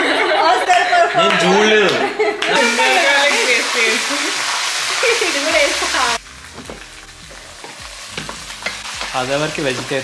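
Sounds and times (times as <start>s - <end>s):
food sizzling in a pot: 2.5s - 10.0s.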